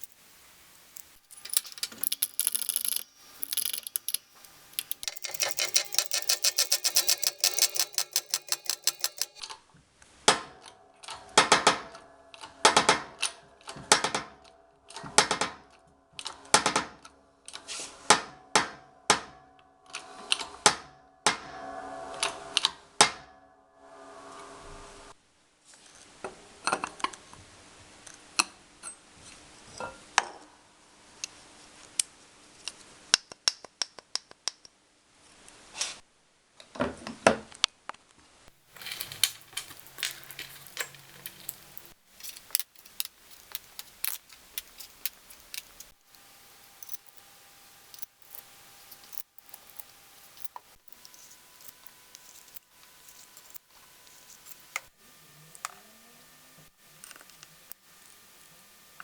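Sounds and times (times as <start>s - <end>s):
metal parts and tools clinking: 0.0s - 9.5s, 38.6s - 55.0s, 56.6s - 58.3s.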